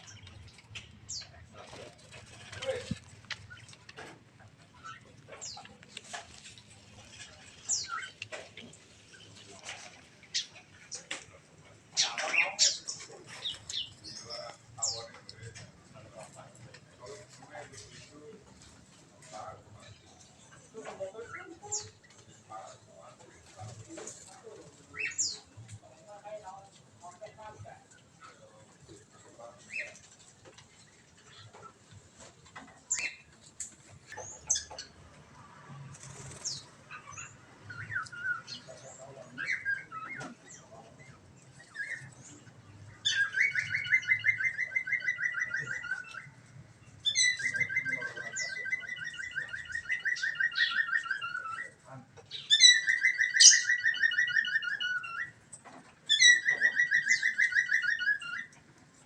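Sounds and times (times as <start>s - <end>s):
birds chirping: 0.0s - 59.0s
loud fast bird trill: 52.3s - 55.4s.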